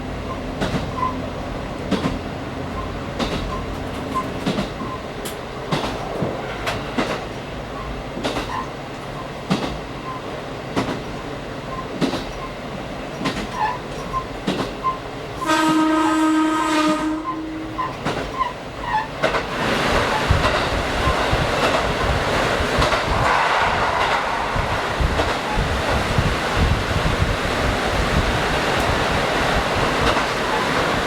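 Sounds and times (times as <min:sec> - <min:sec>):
train wheel clicks on rails: 0:00.2 - 0:01.2, 0:01.8 - 0:15.9, 0:16.8 - 0:31.0
train horn blast: 0:15.4 - 0:18.0
steady rushing noise: 0:19.5 - 0:31.0.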